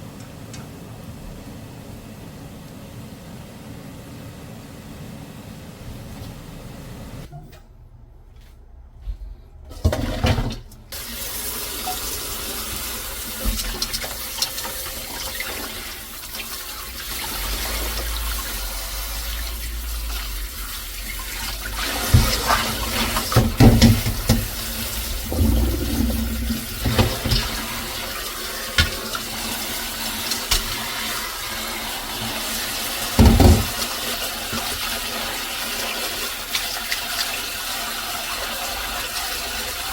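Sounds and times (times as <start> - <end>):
tap water running into sink: 9.8 - 39.9.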